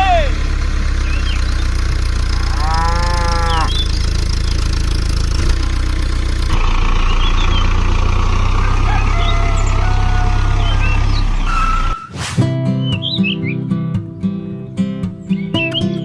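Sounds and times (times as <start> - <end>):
small motor humming: 0.4 - 12.0
cow mooing: 2.3 - 3.9, 8.6 - 11.9.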